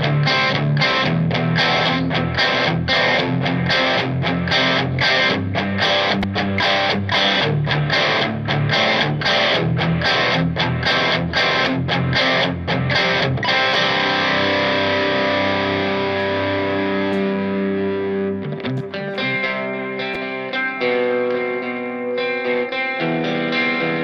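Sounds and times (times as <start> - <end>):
electric guitar strumming chords: 0.0 - 24.0.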